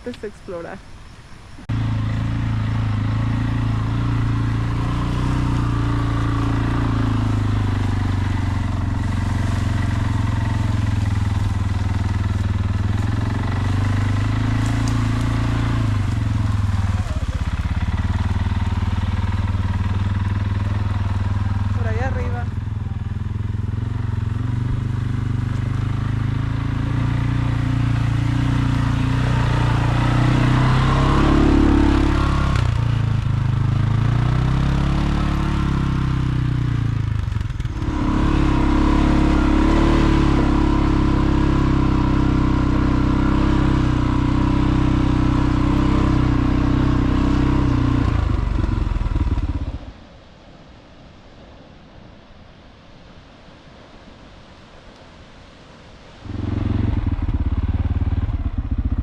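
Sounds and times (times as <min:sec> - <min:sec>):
vehicle engine running: 0:01.6 - 0:50.1, 0:56.3 - 0:59.0.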